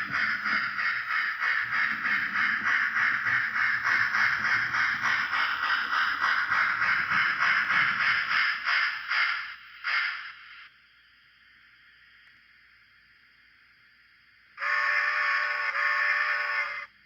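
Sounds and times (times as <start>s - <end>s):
steam chuffs through small speaker: 0.0s - 10.7s, 14.6s - 17.0s
faint steady hiss: 8.6s - 17.0s.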